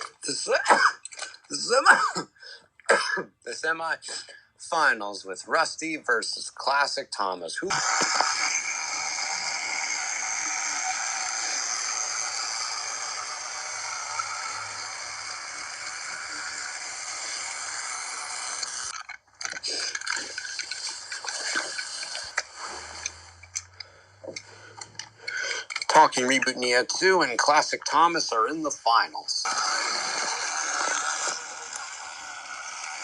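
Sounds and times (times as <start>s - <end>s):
toy trains whirring on track: 7.7s - 23.8s, 24.4s - 26.7s, 29.4s - 33.0s
plastic clicks and rattles: 18.9s - 26.5s.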